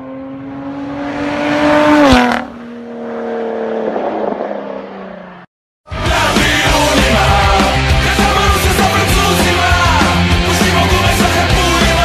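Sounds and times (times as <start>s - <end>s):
sports car driving by: 0.0s - 5.5s.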